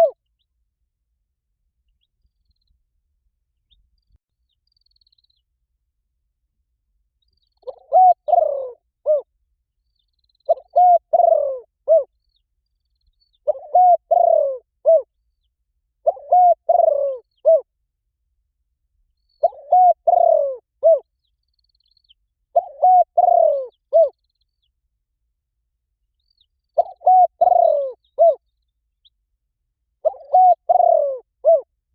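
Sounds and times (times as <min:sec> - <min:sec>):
dove cooing: 0:07.6 - 0:09.3, 0:10.5 - 0:12.1, 0:13.4 - 0:15.1, 0:16.0 - 0:17.7, 0:19.4 - 0:21.0, 0:22.5 - 0:24.2, 0:26.8 - 0:28.4, 0:30.0 - 0:31.7.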